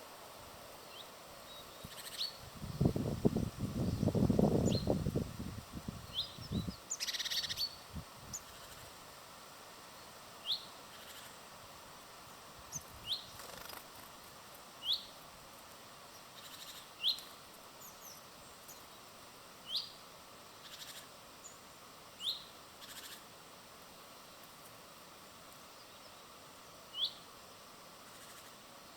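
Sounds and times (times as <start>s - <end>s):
small bird chirping: 0.9s - 3.0s, 3.8s - 5.1s, 6.0s - 8.9s, 16.1s - 19.0s, 19.6s - 20.0s, 20.6s - 21.6s, 22.2s - 23.2s, 26.9s - 27.2s
wing flutters and rustles: 12.2s - 14.8s.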